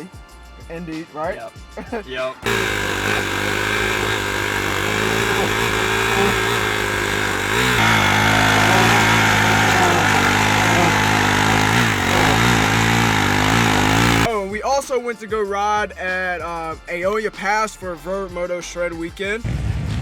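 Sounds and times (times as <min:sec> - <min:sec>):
dirt bike engine revving: 0:02.4 - 0:14.3.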